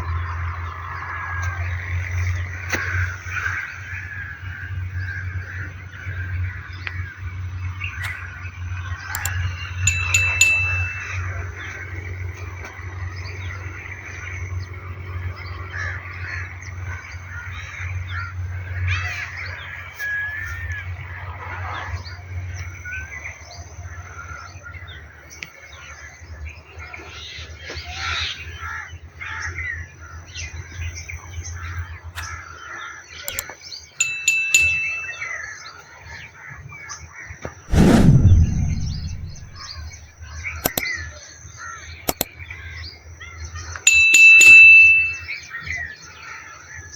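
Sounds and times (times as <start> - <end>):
loud thump with falling rumble: 37.7 - 40.0.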